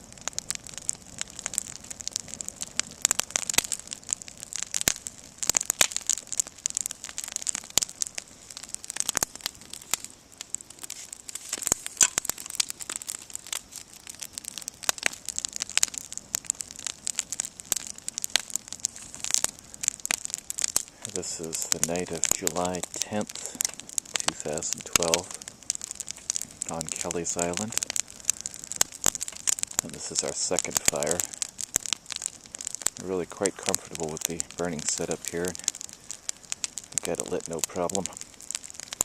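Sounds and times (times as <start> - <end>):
campfire crackling and popping: 0.0 - 39.0
faint hiss: 0.0 - 39.0.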